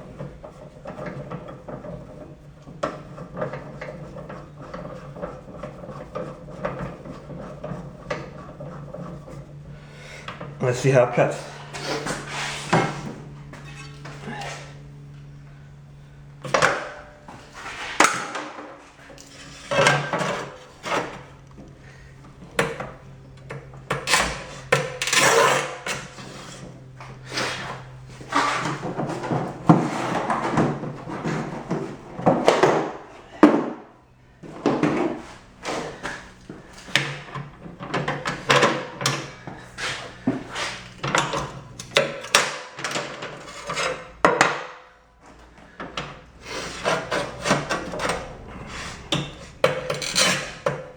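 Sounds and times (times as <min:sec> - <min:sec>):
tile and cutter clattering: 0:17.8 - 0:21.2, 0:36.9 - 0:44.8, 0:45.8 - 0:50.9
tile cutter wheel rasping: 0:46.4 - 0:50.8.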